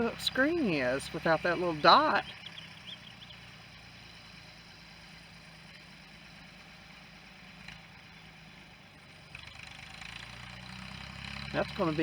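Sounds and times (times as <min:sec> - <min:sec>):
faint engine humming: 0:00.0 - 0:12.0.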